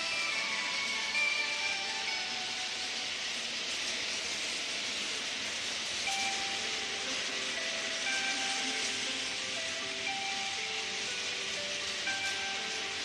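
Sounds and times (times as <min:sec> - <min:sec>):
faint music notes: 0:00.0 - 0:13.0
toy train hiss: 0:00.0 - 0:13.0.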